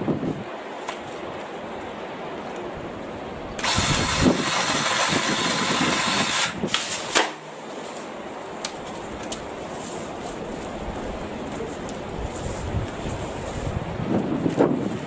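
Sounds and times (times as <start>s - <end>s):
wind buffeting microphone: 0.0s - 7.1s, 9.0s - 15.0s
power saw cutting branches: 3.6s - 7.4s.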